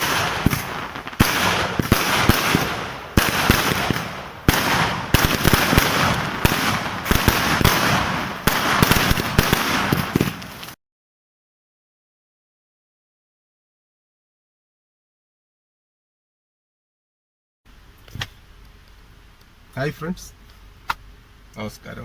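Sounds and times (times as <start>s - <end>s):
continuous roar: 0.0s - 10.8s
firecracker bangs and crackling: 0.0s - 10.8s
heavy firework bangs: 0.0s - 10.8s.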